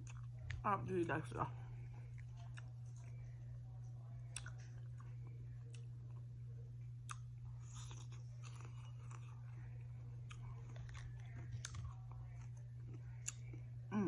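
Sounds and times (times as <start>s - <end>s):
chewing crispy fried chicken: 0.0s - 0.6s, 1.7s - 14.0s
steady low hum: 0.0s - 14.0s.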